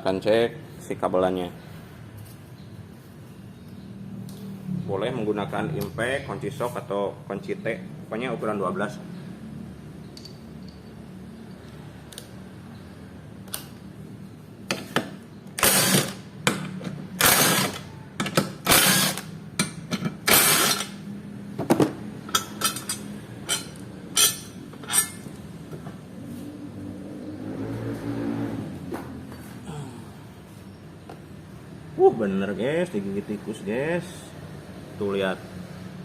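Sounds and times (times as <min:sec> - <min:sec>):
socket wrench ratcheting: 0:15.6 - 0:21.0.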